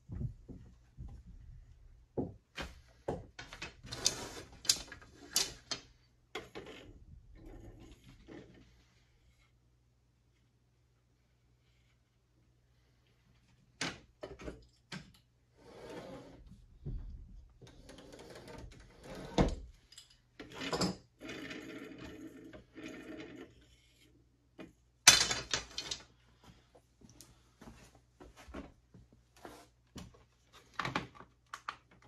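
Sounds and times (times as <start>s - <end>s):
rubbing or scraping: 3.8s - 5.6s, 15.5s - 16.6s.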